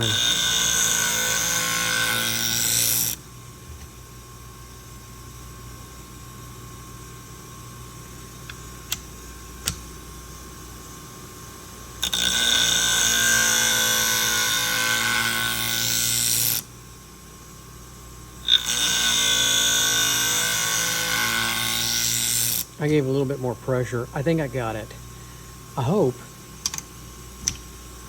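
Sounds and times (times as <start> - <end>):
scissor blade grinding on wheel: 0.0 - 3.2, 12.0 - 16.6, 18.5 - 22.7
sharpener motor humming: 0.0 - 3.2, 18.5 - 22.7.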